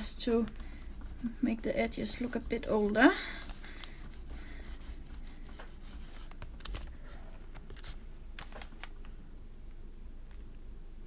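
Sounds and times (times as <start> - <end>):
crayon rubbing on paper: 0.0 - 6.5.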